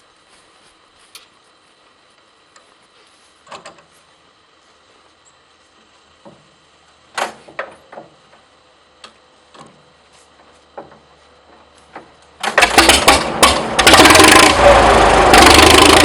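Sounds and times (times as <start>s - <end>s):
tractor engine running: 0.0s - 16.0s
sharp clicks and knocks: 3.4s - 3.9s, 7.1s - 9.8s, 10.4s - 14.5s.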